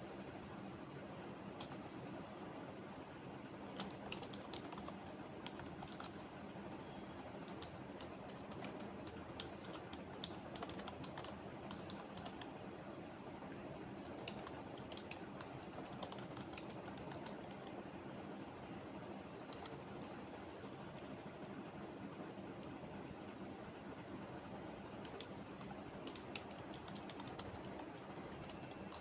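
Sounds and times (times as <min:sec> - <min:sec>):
low background hum: 0:00.0 - 0:29.0
typing on computer keyboard: 0:03.8 - 0:06.3, 0:07.4 - 0:12.6, 0:14.0 - 0:17.8, 0:19.4 - 0:20.6, 0:25.0 - 0:29.0.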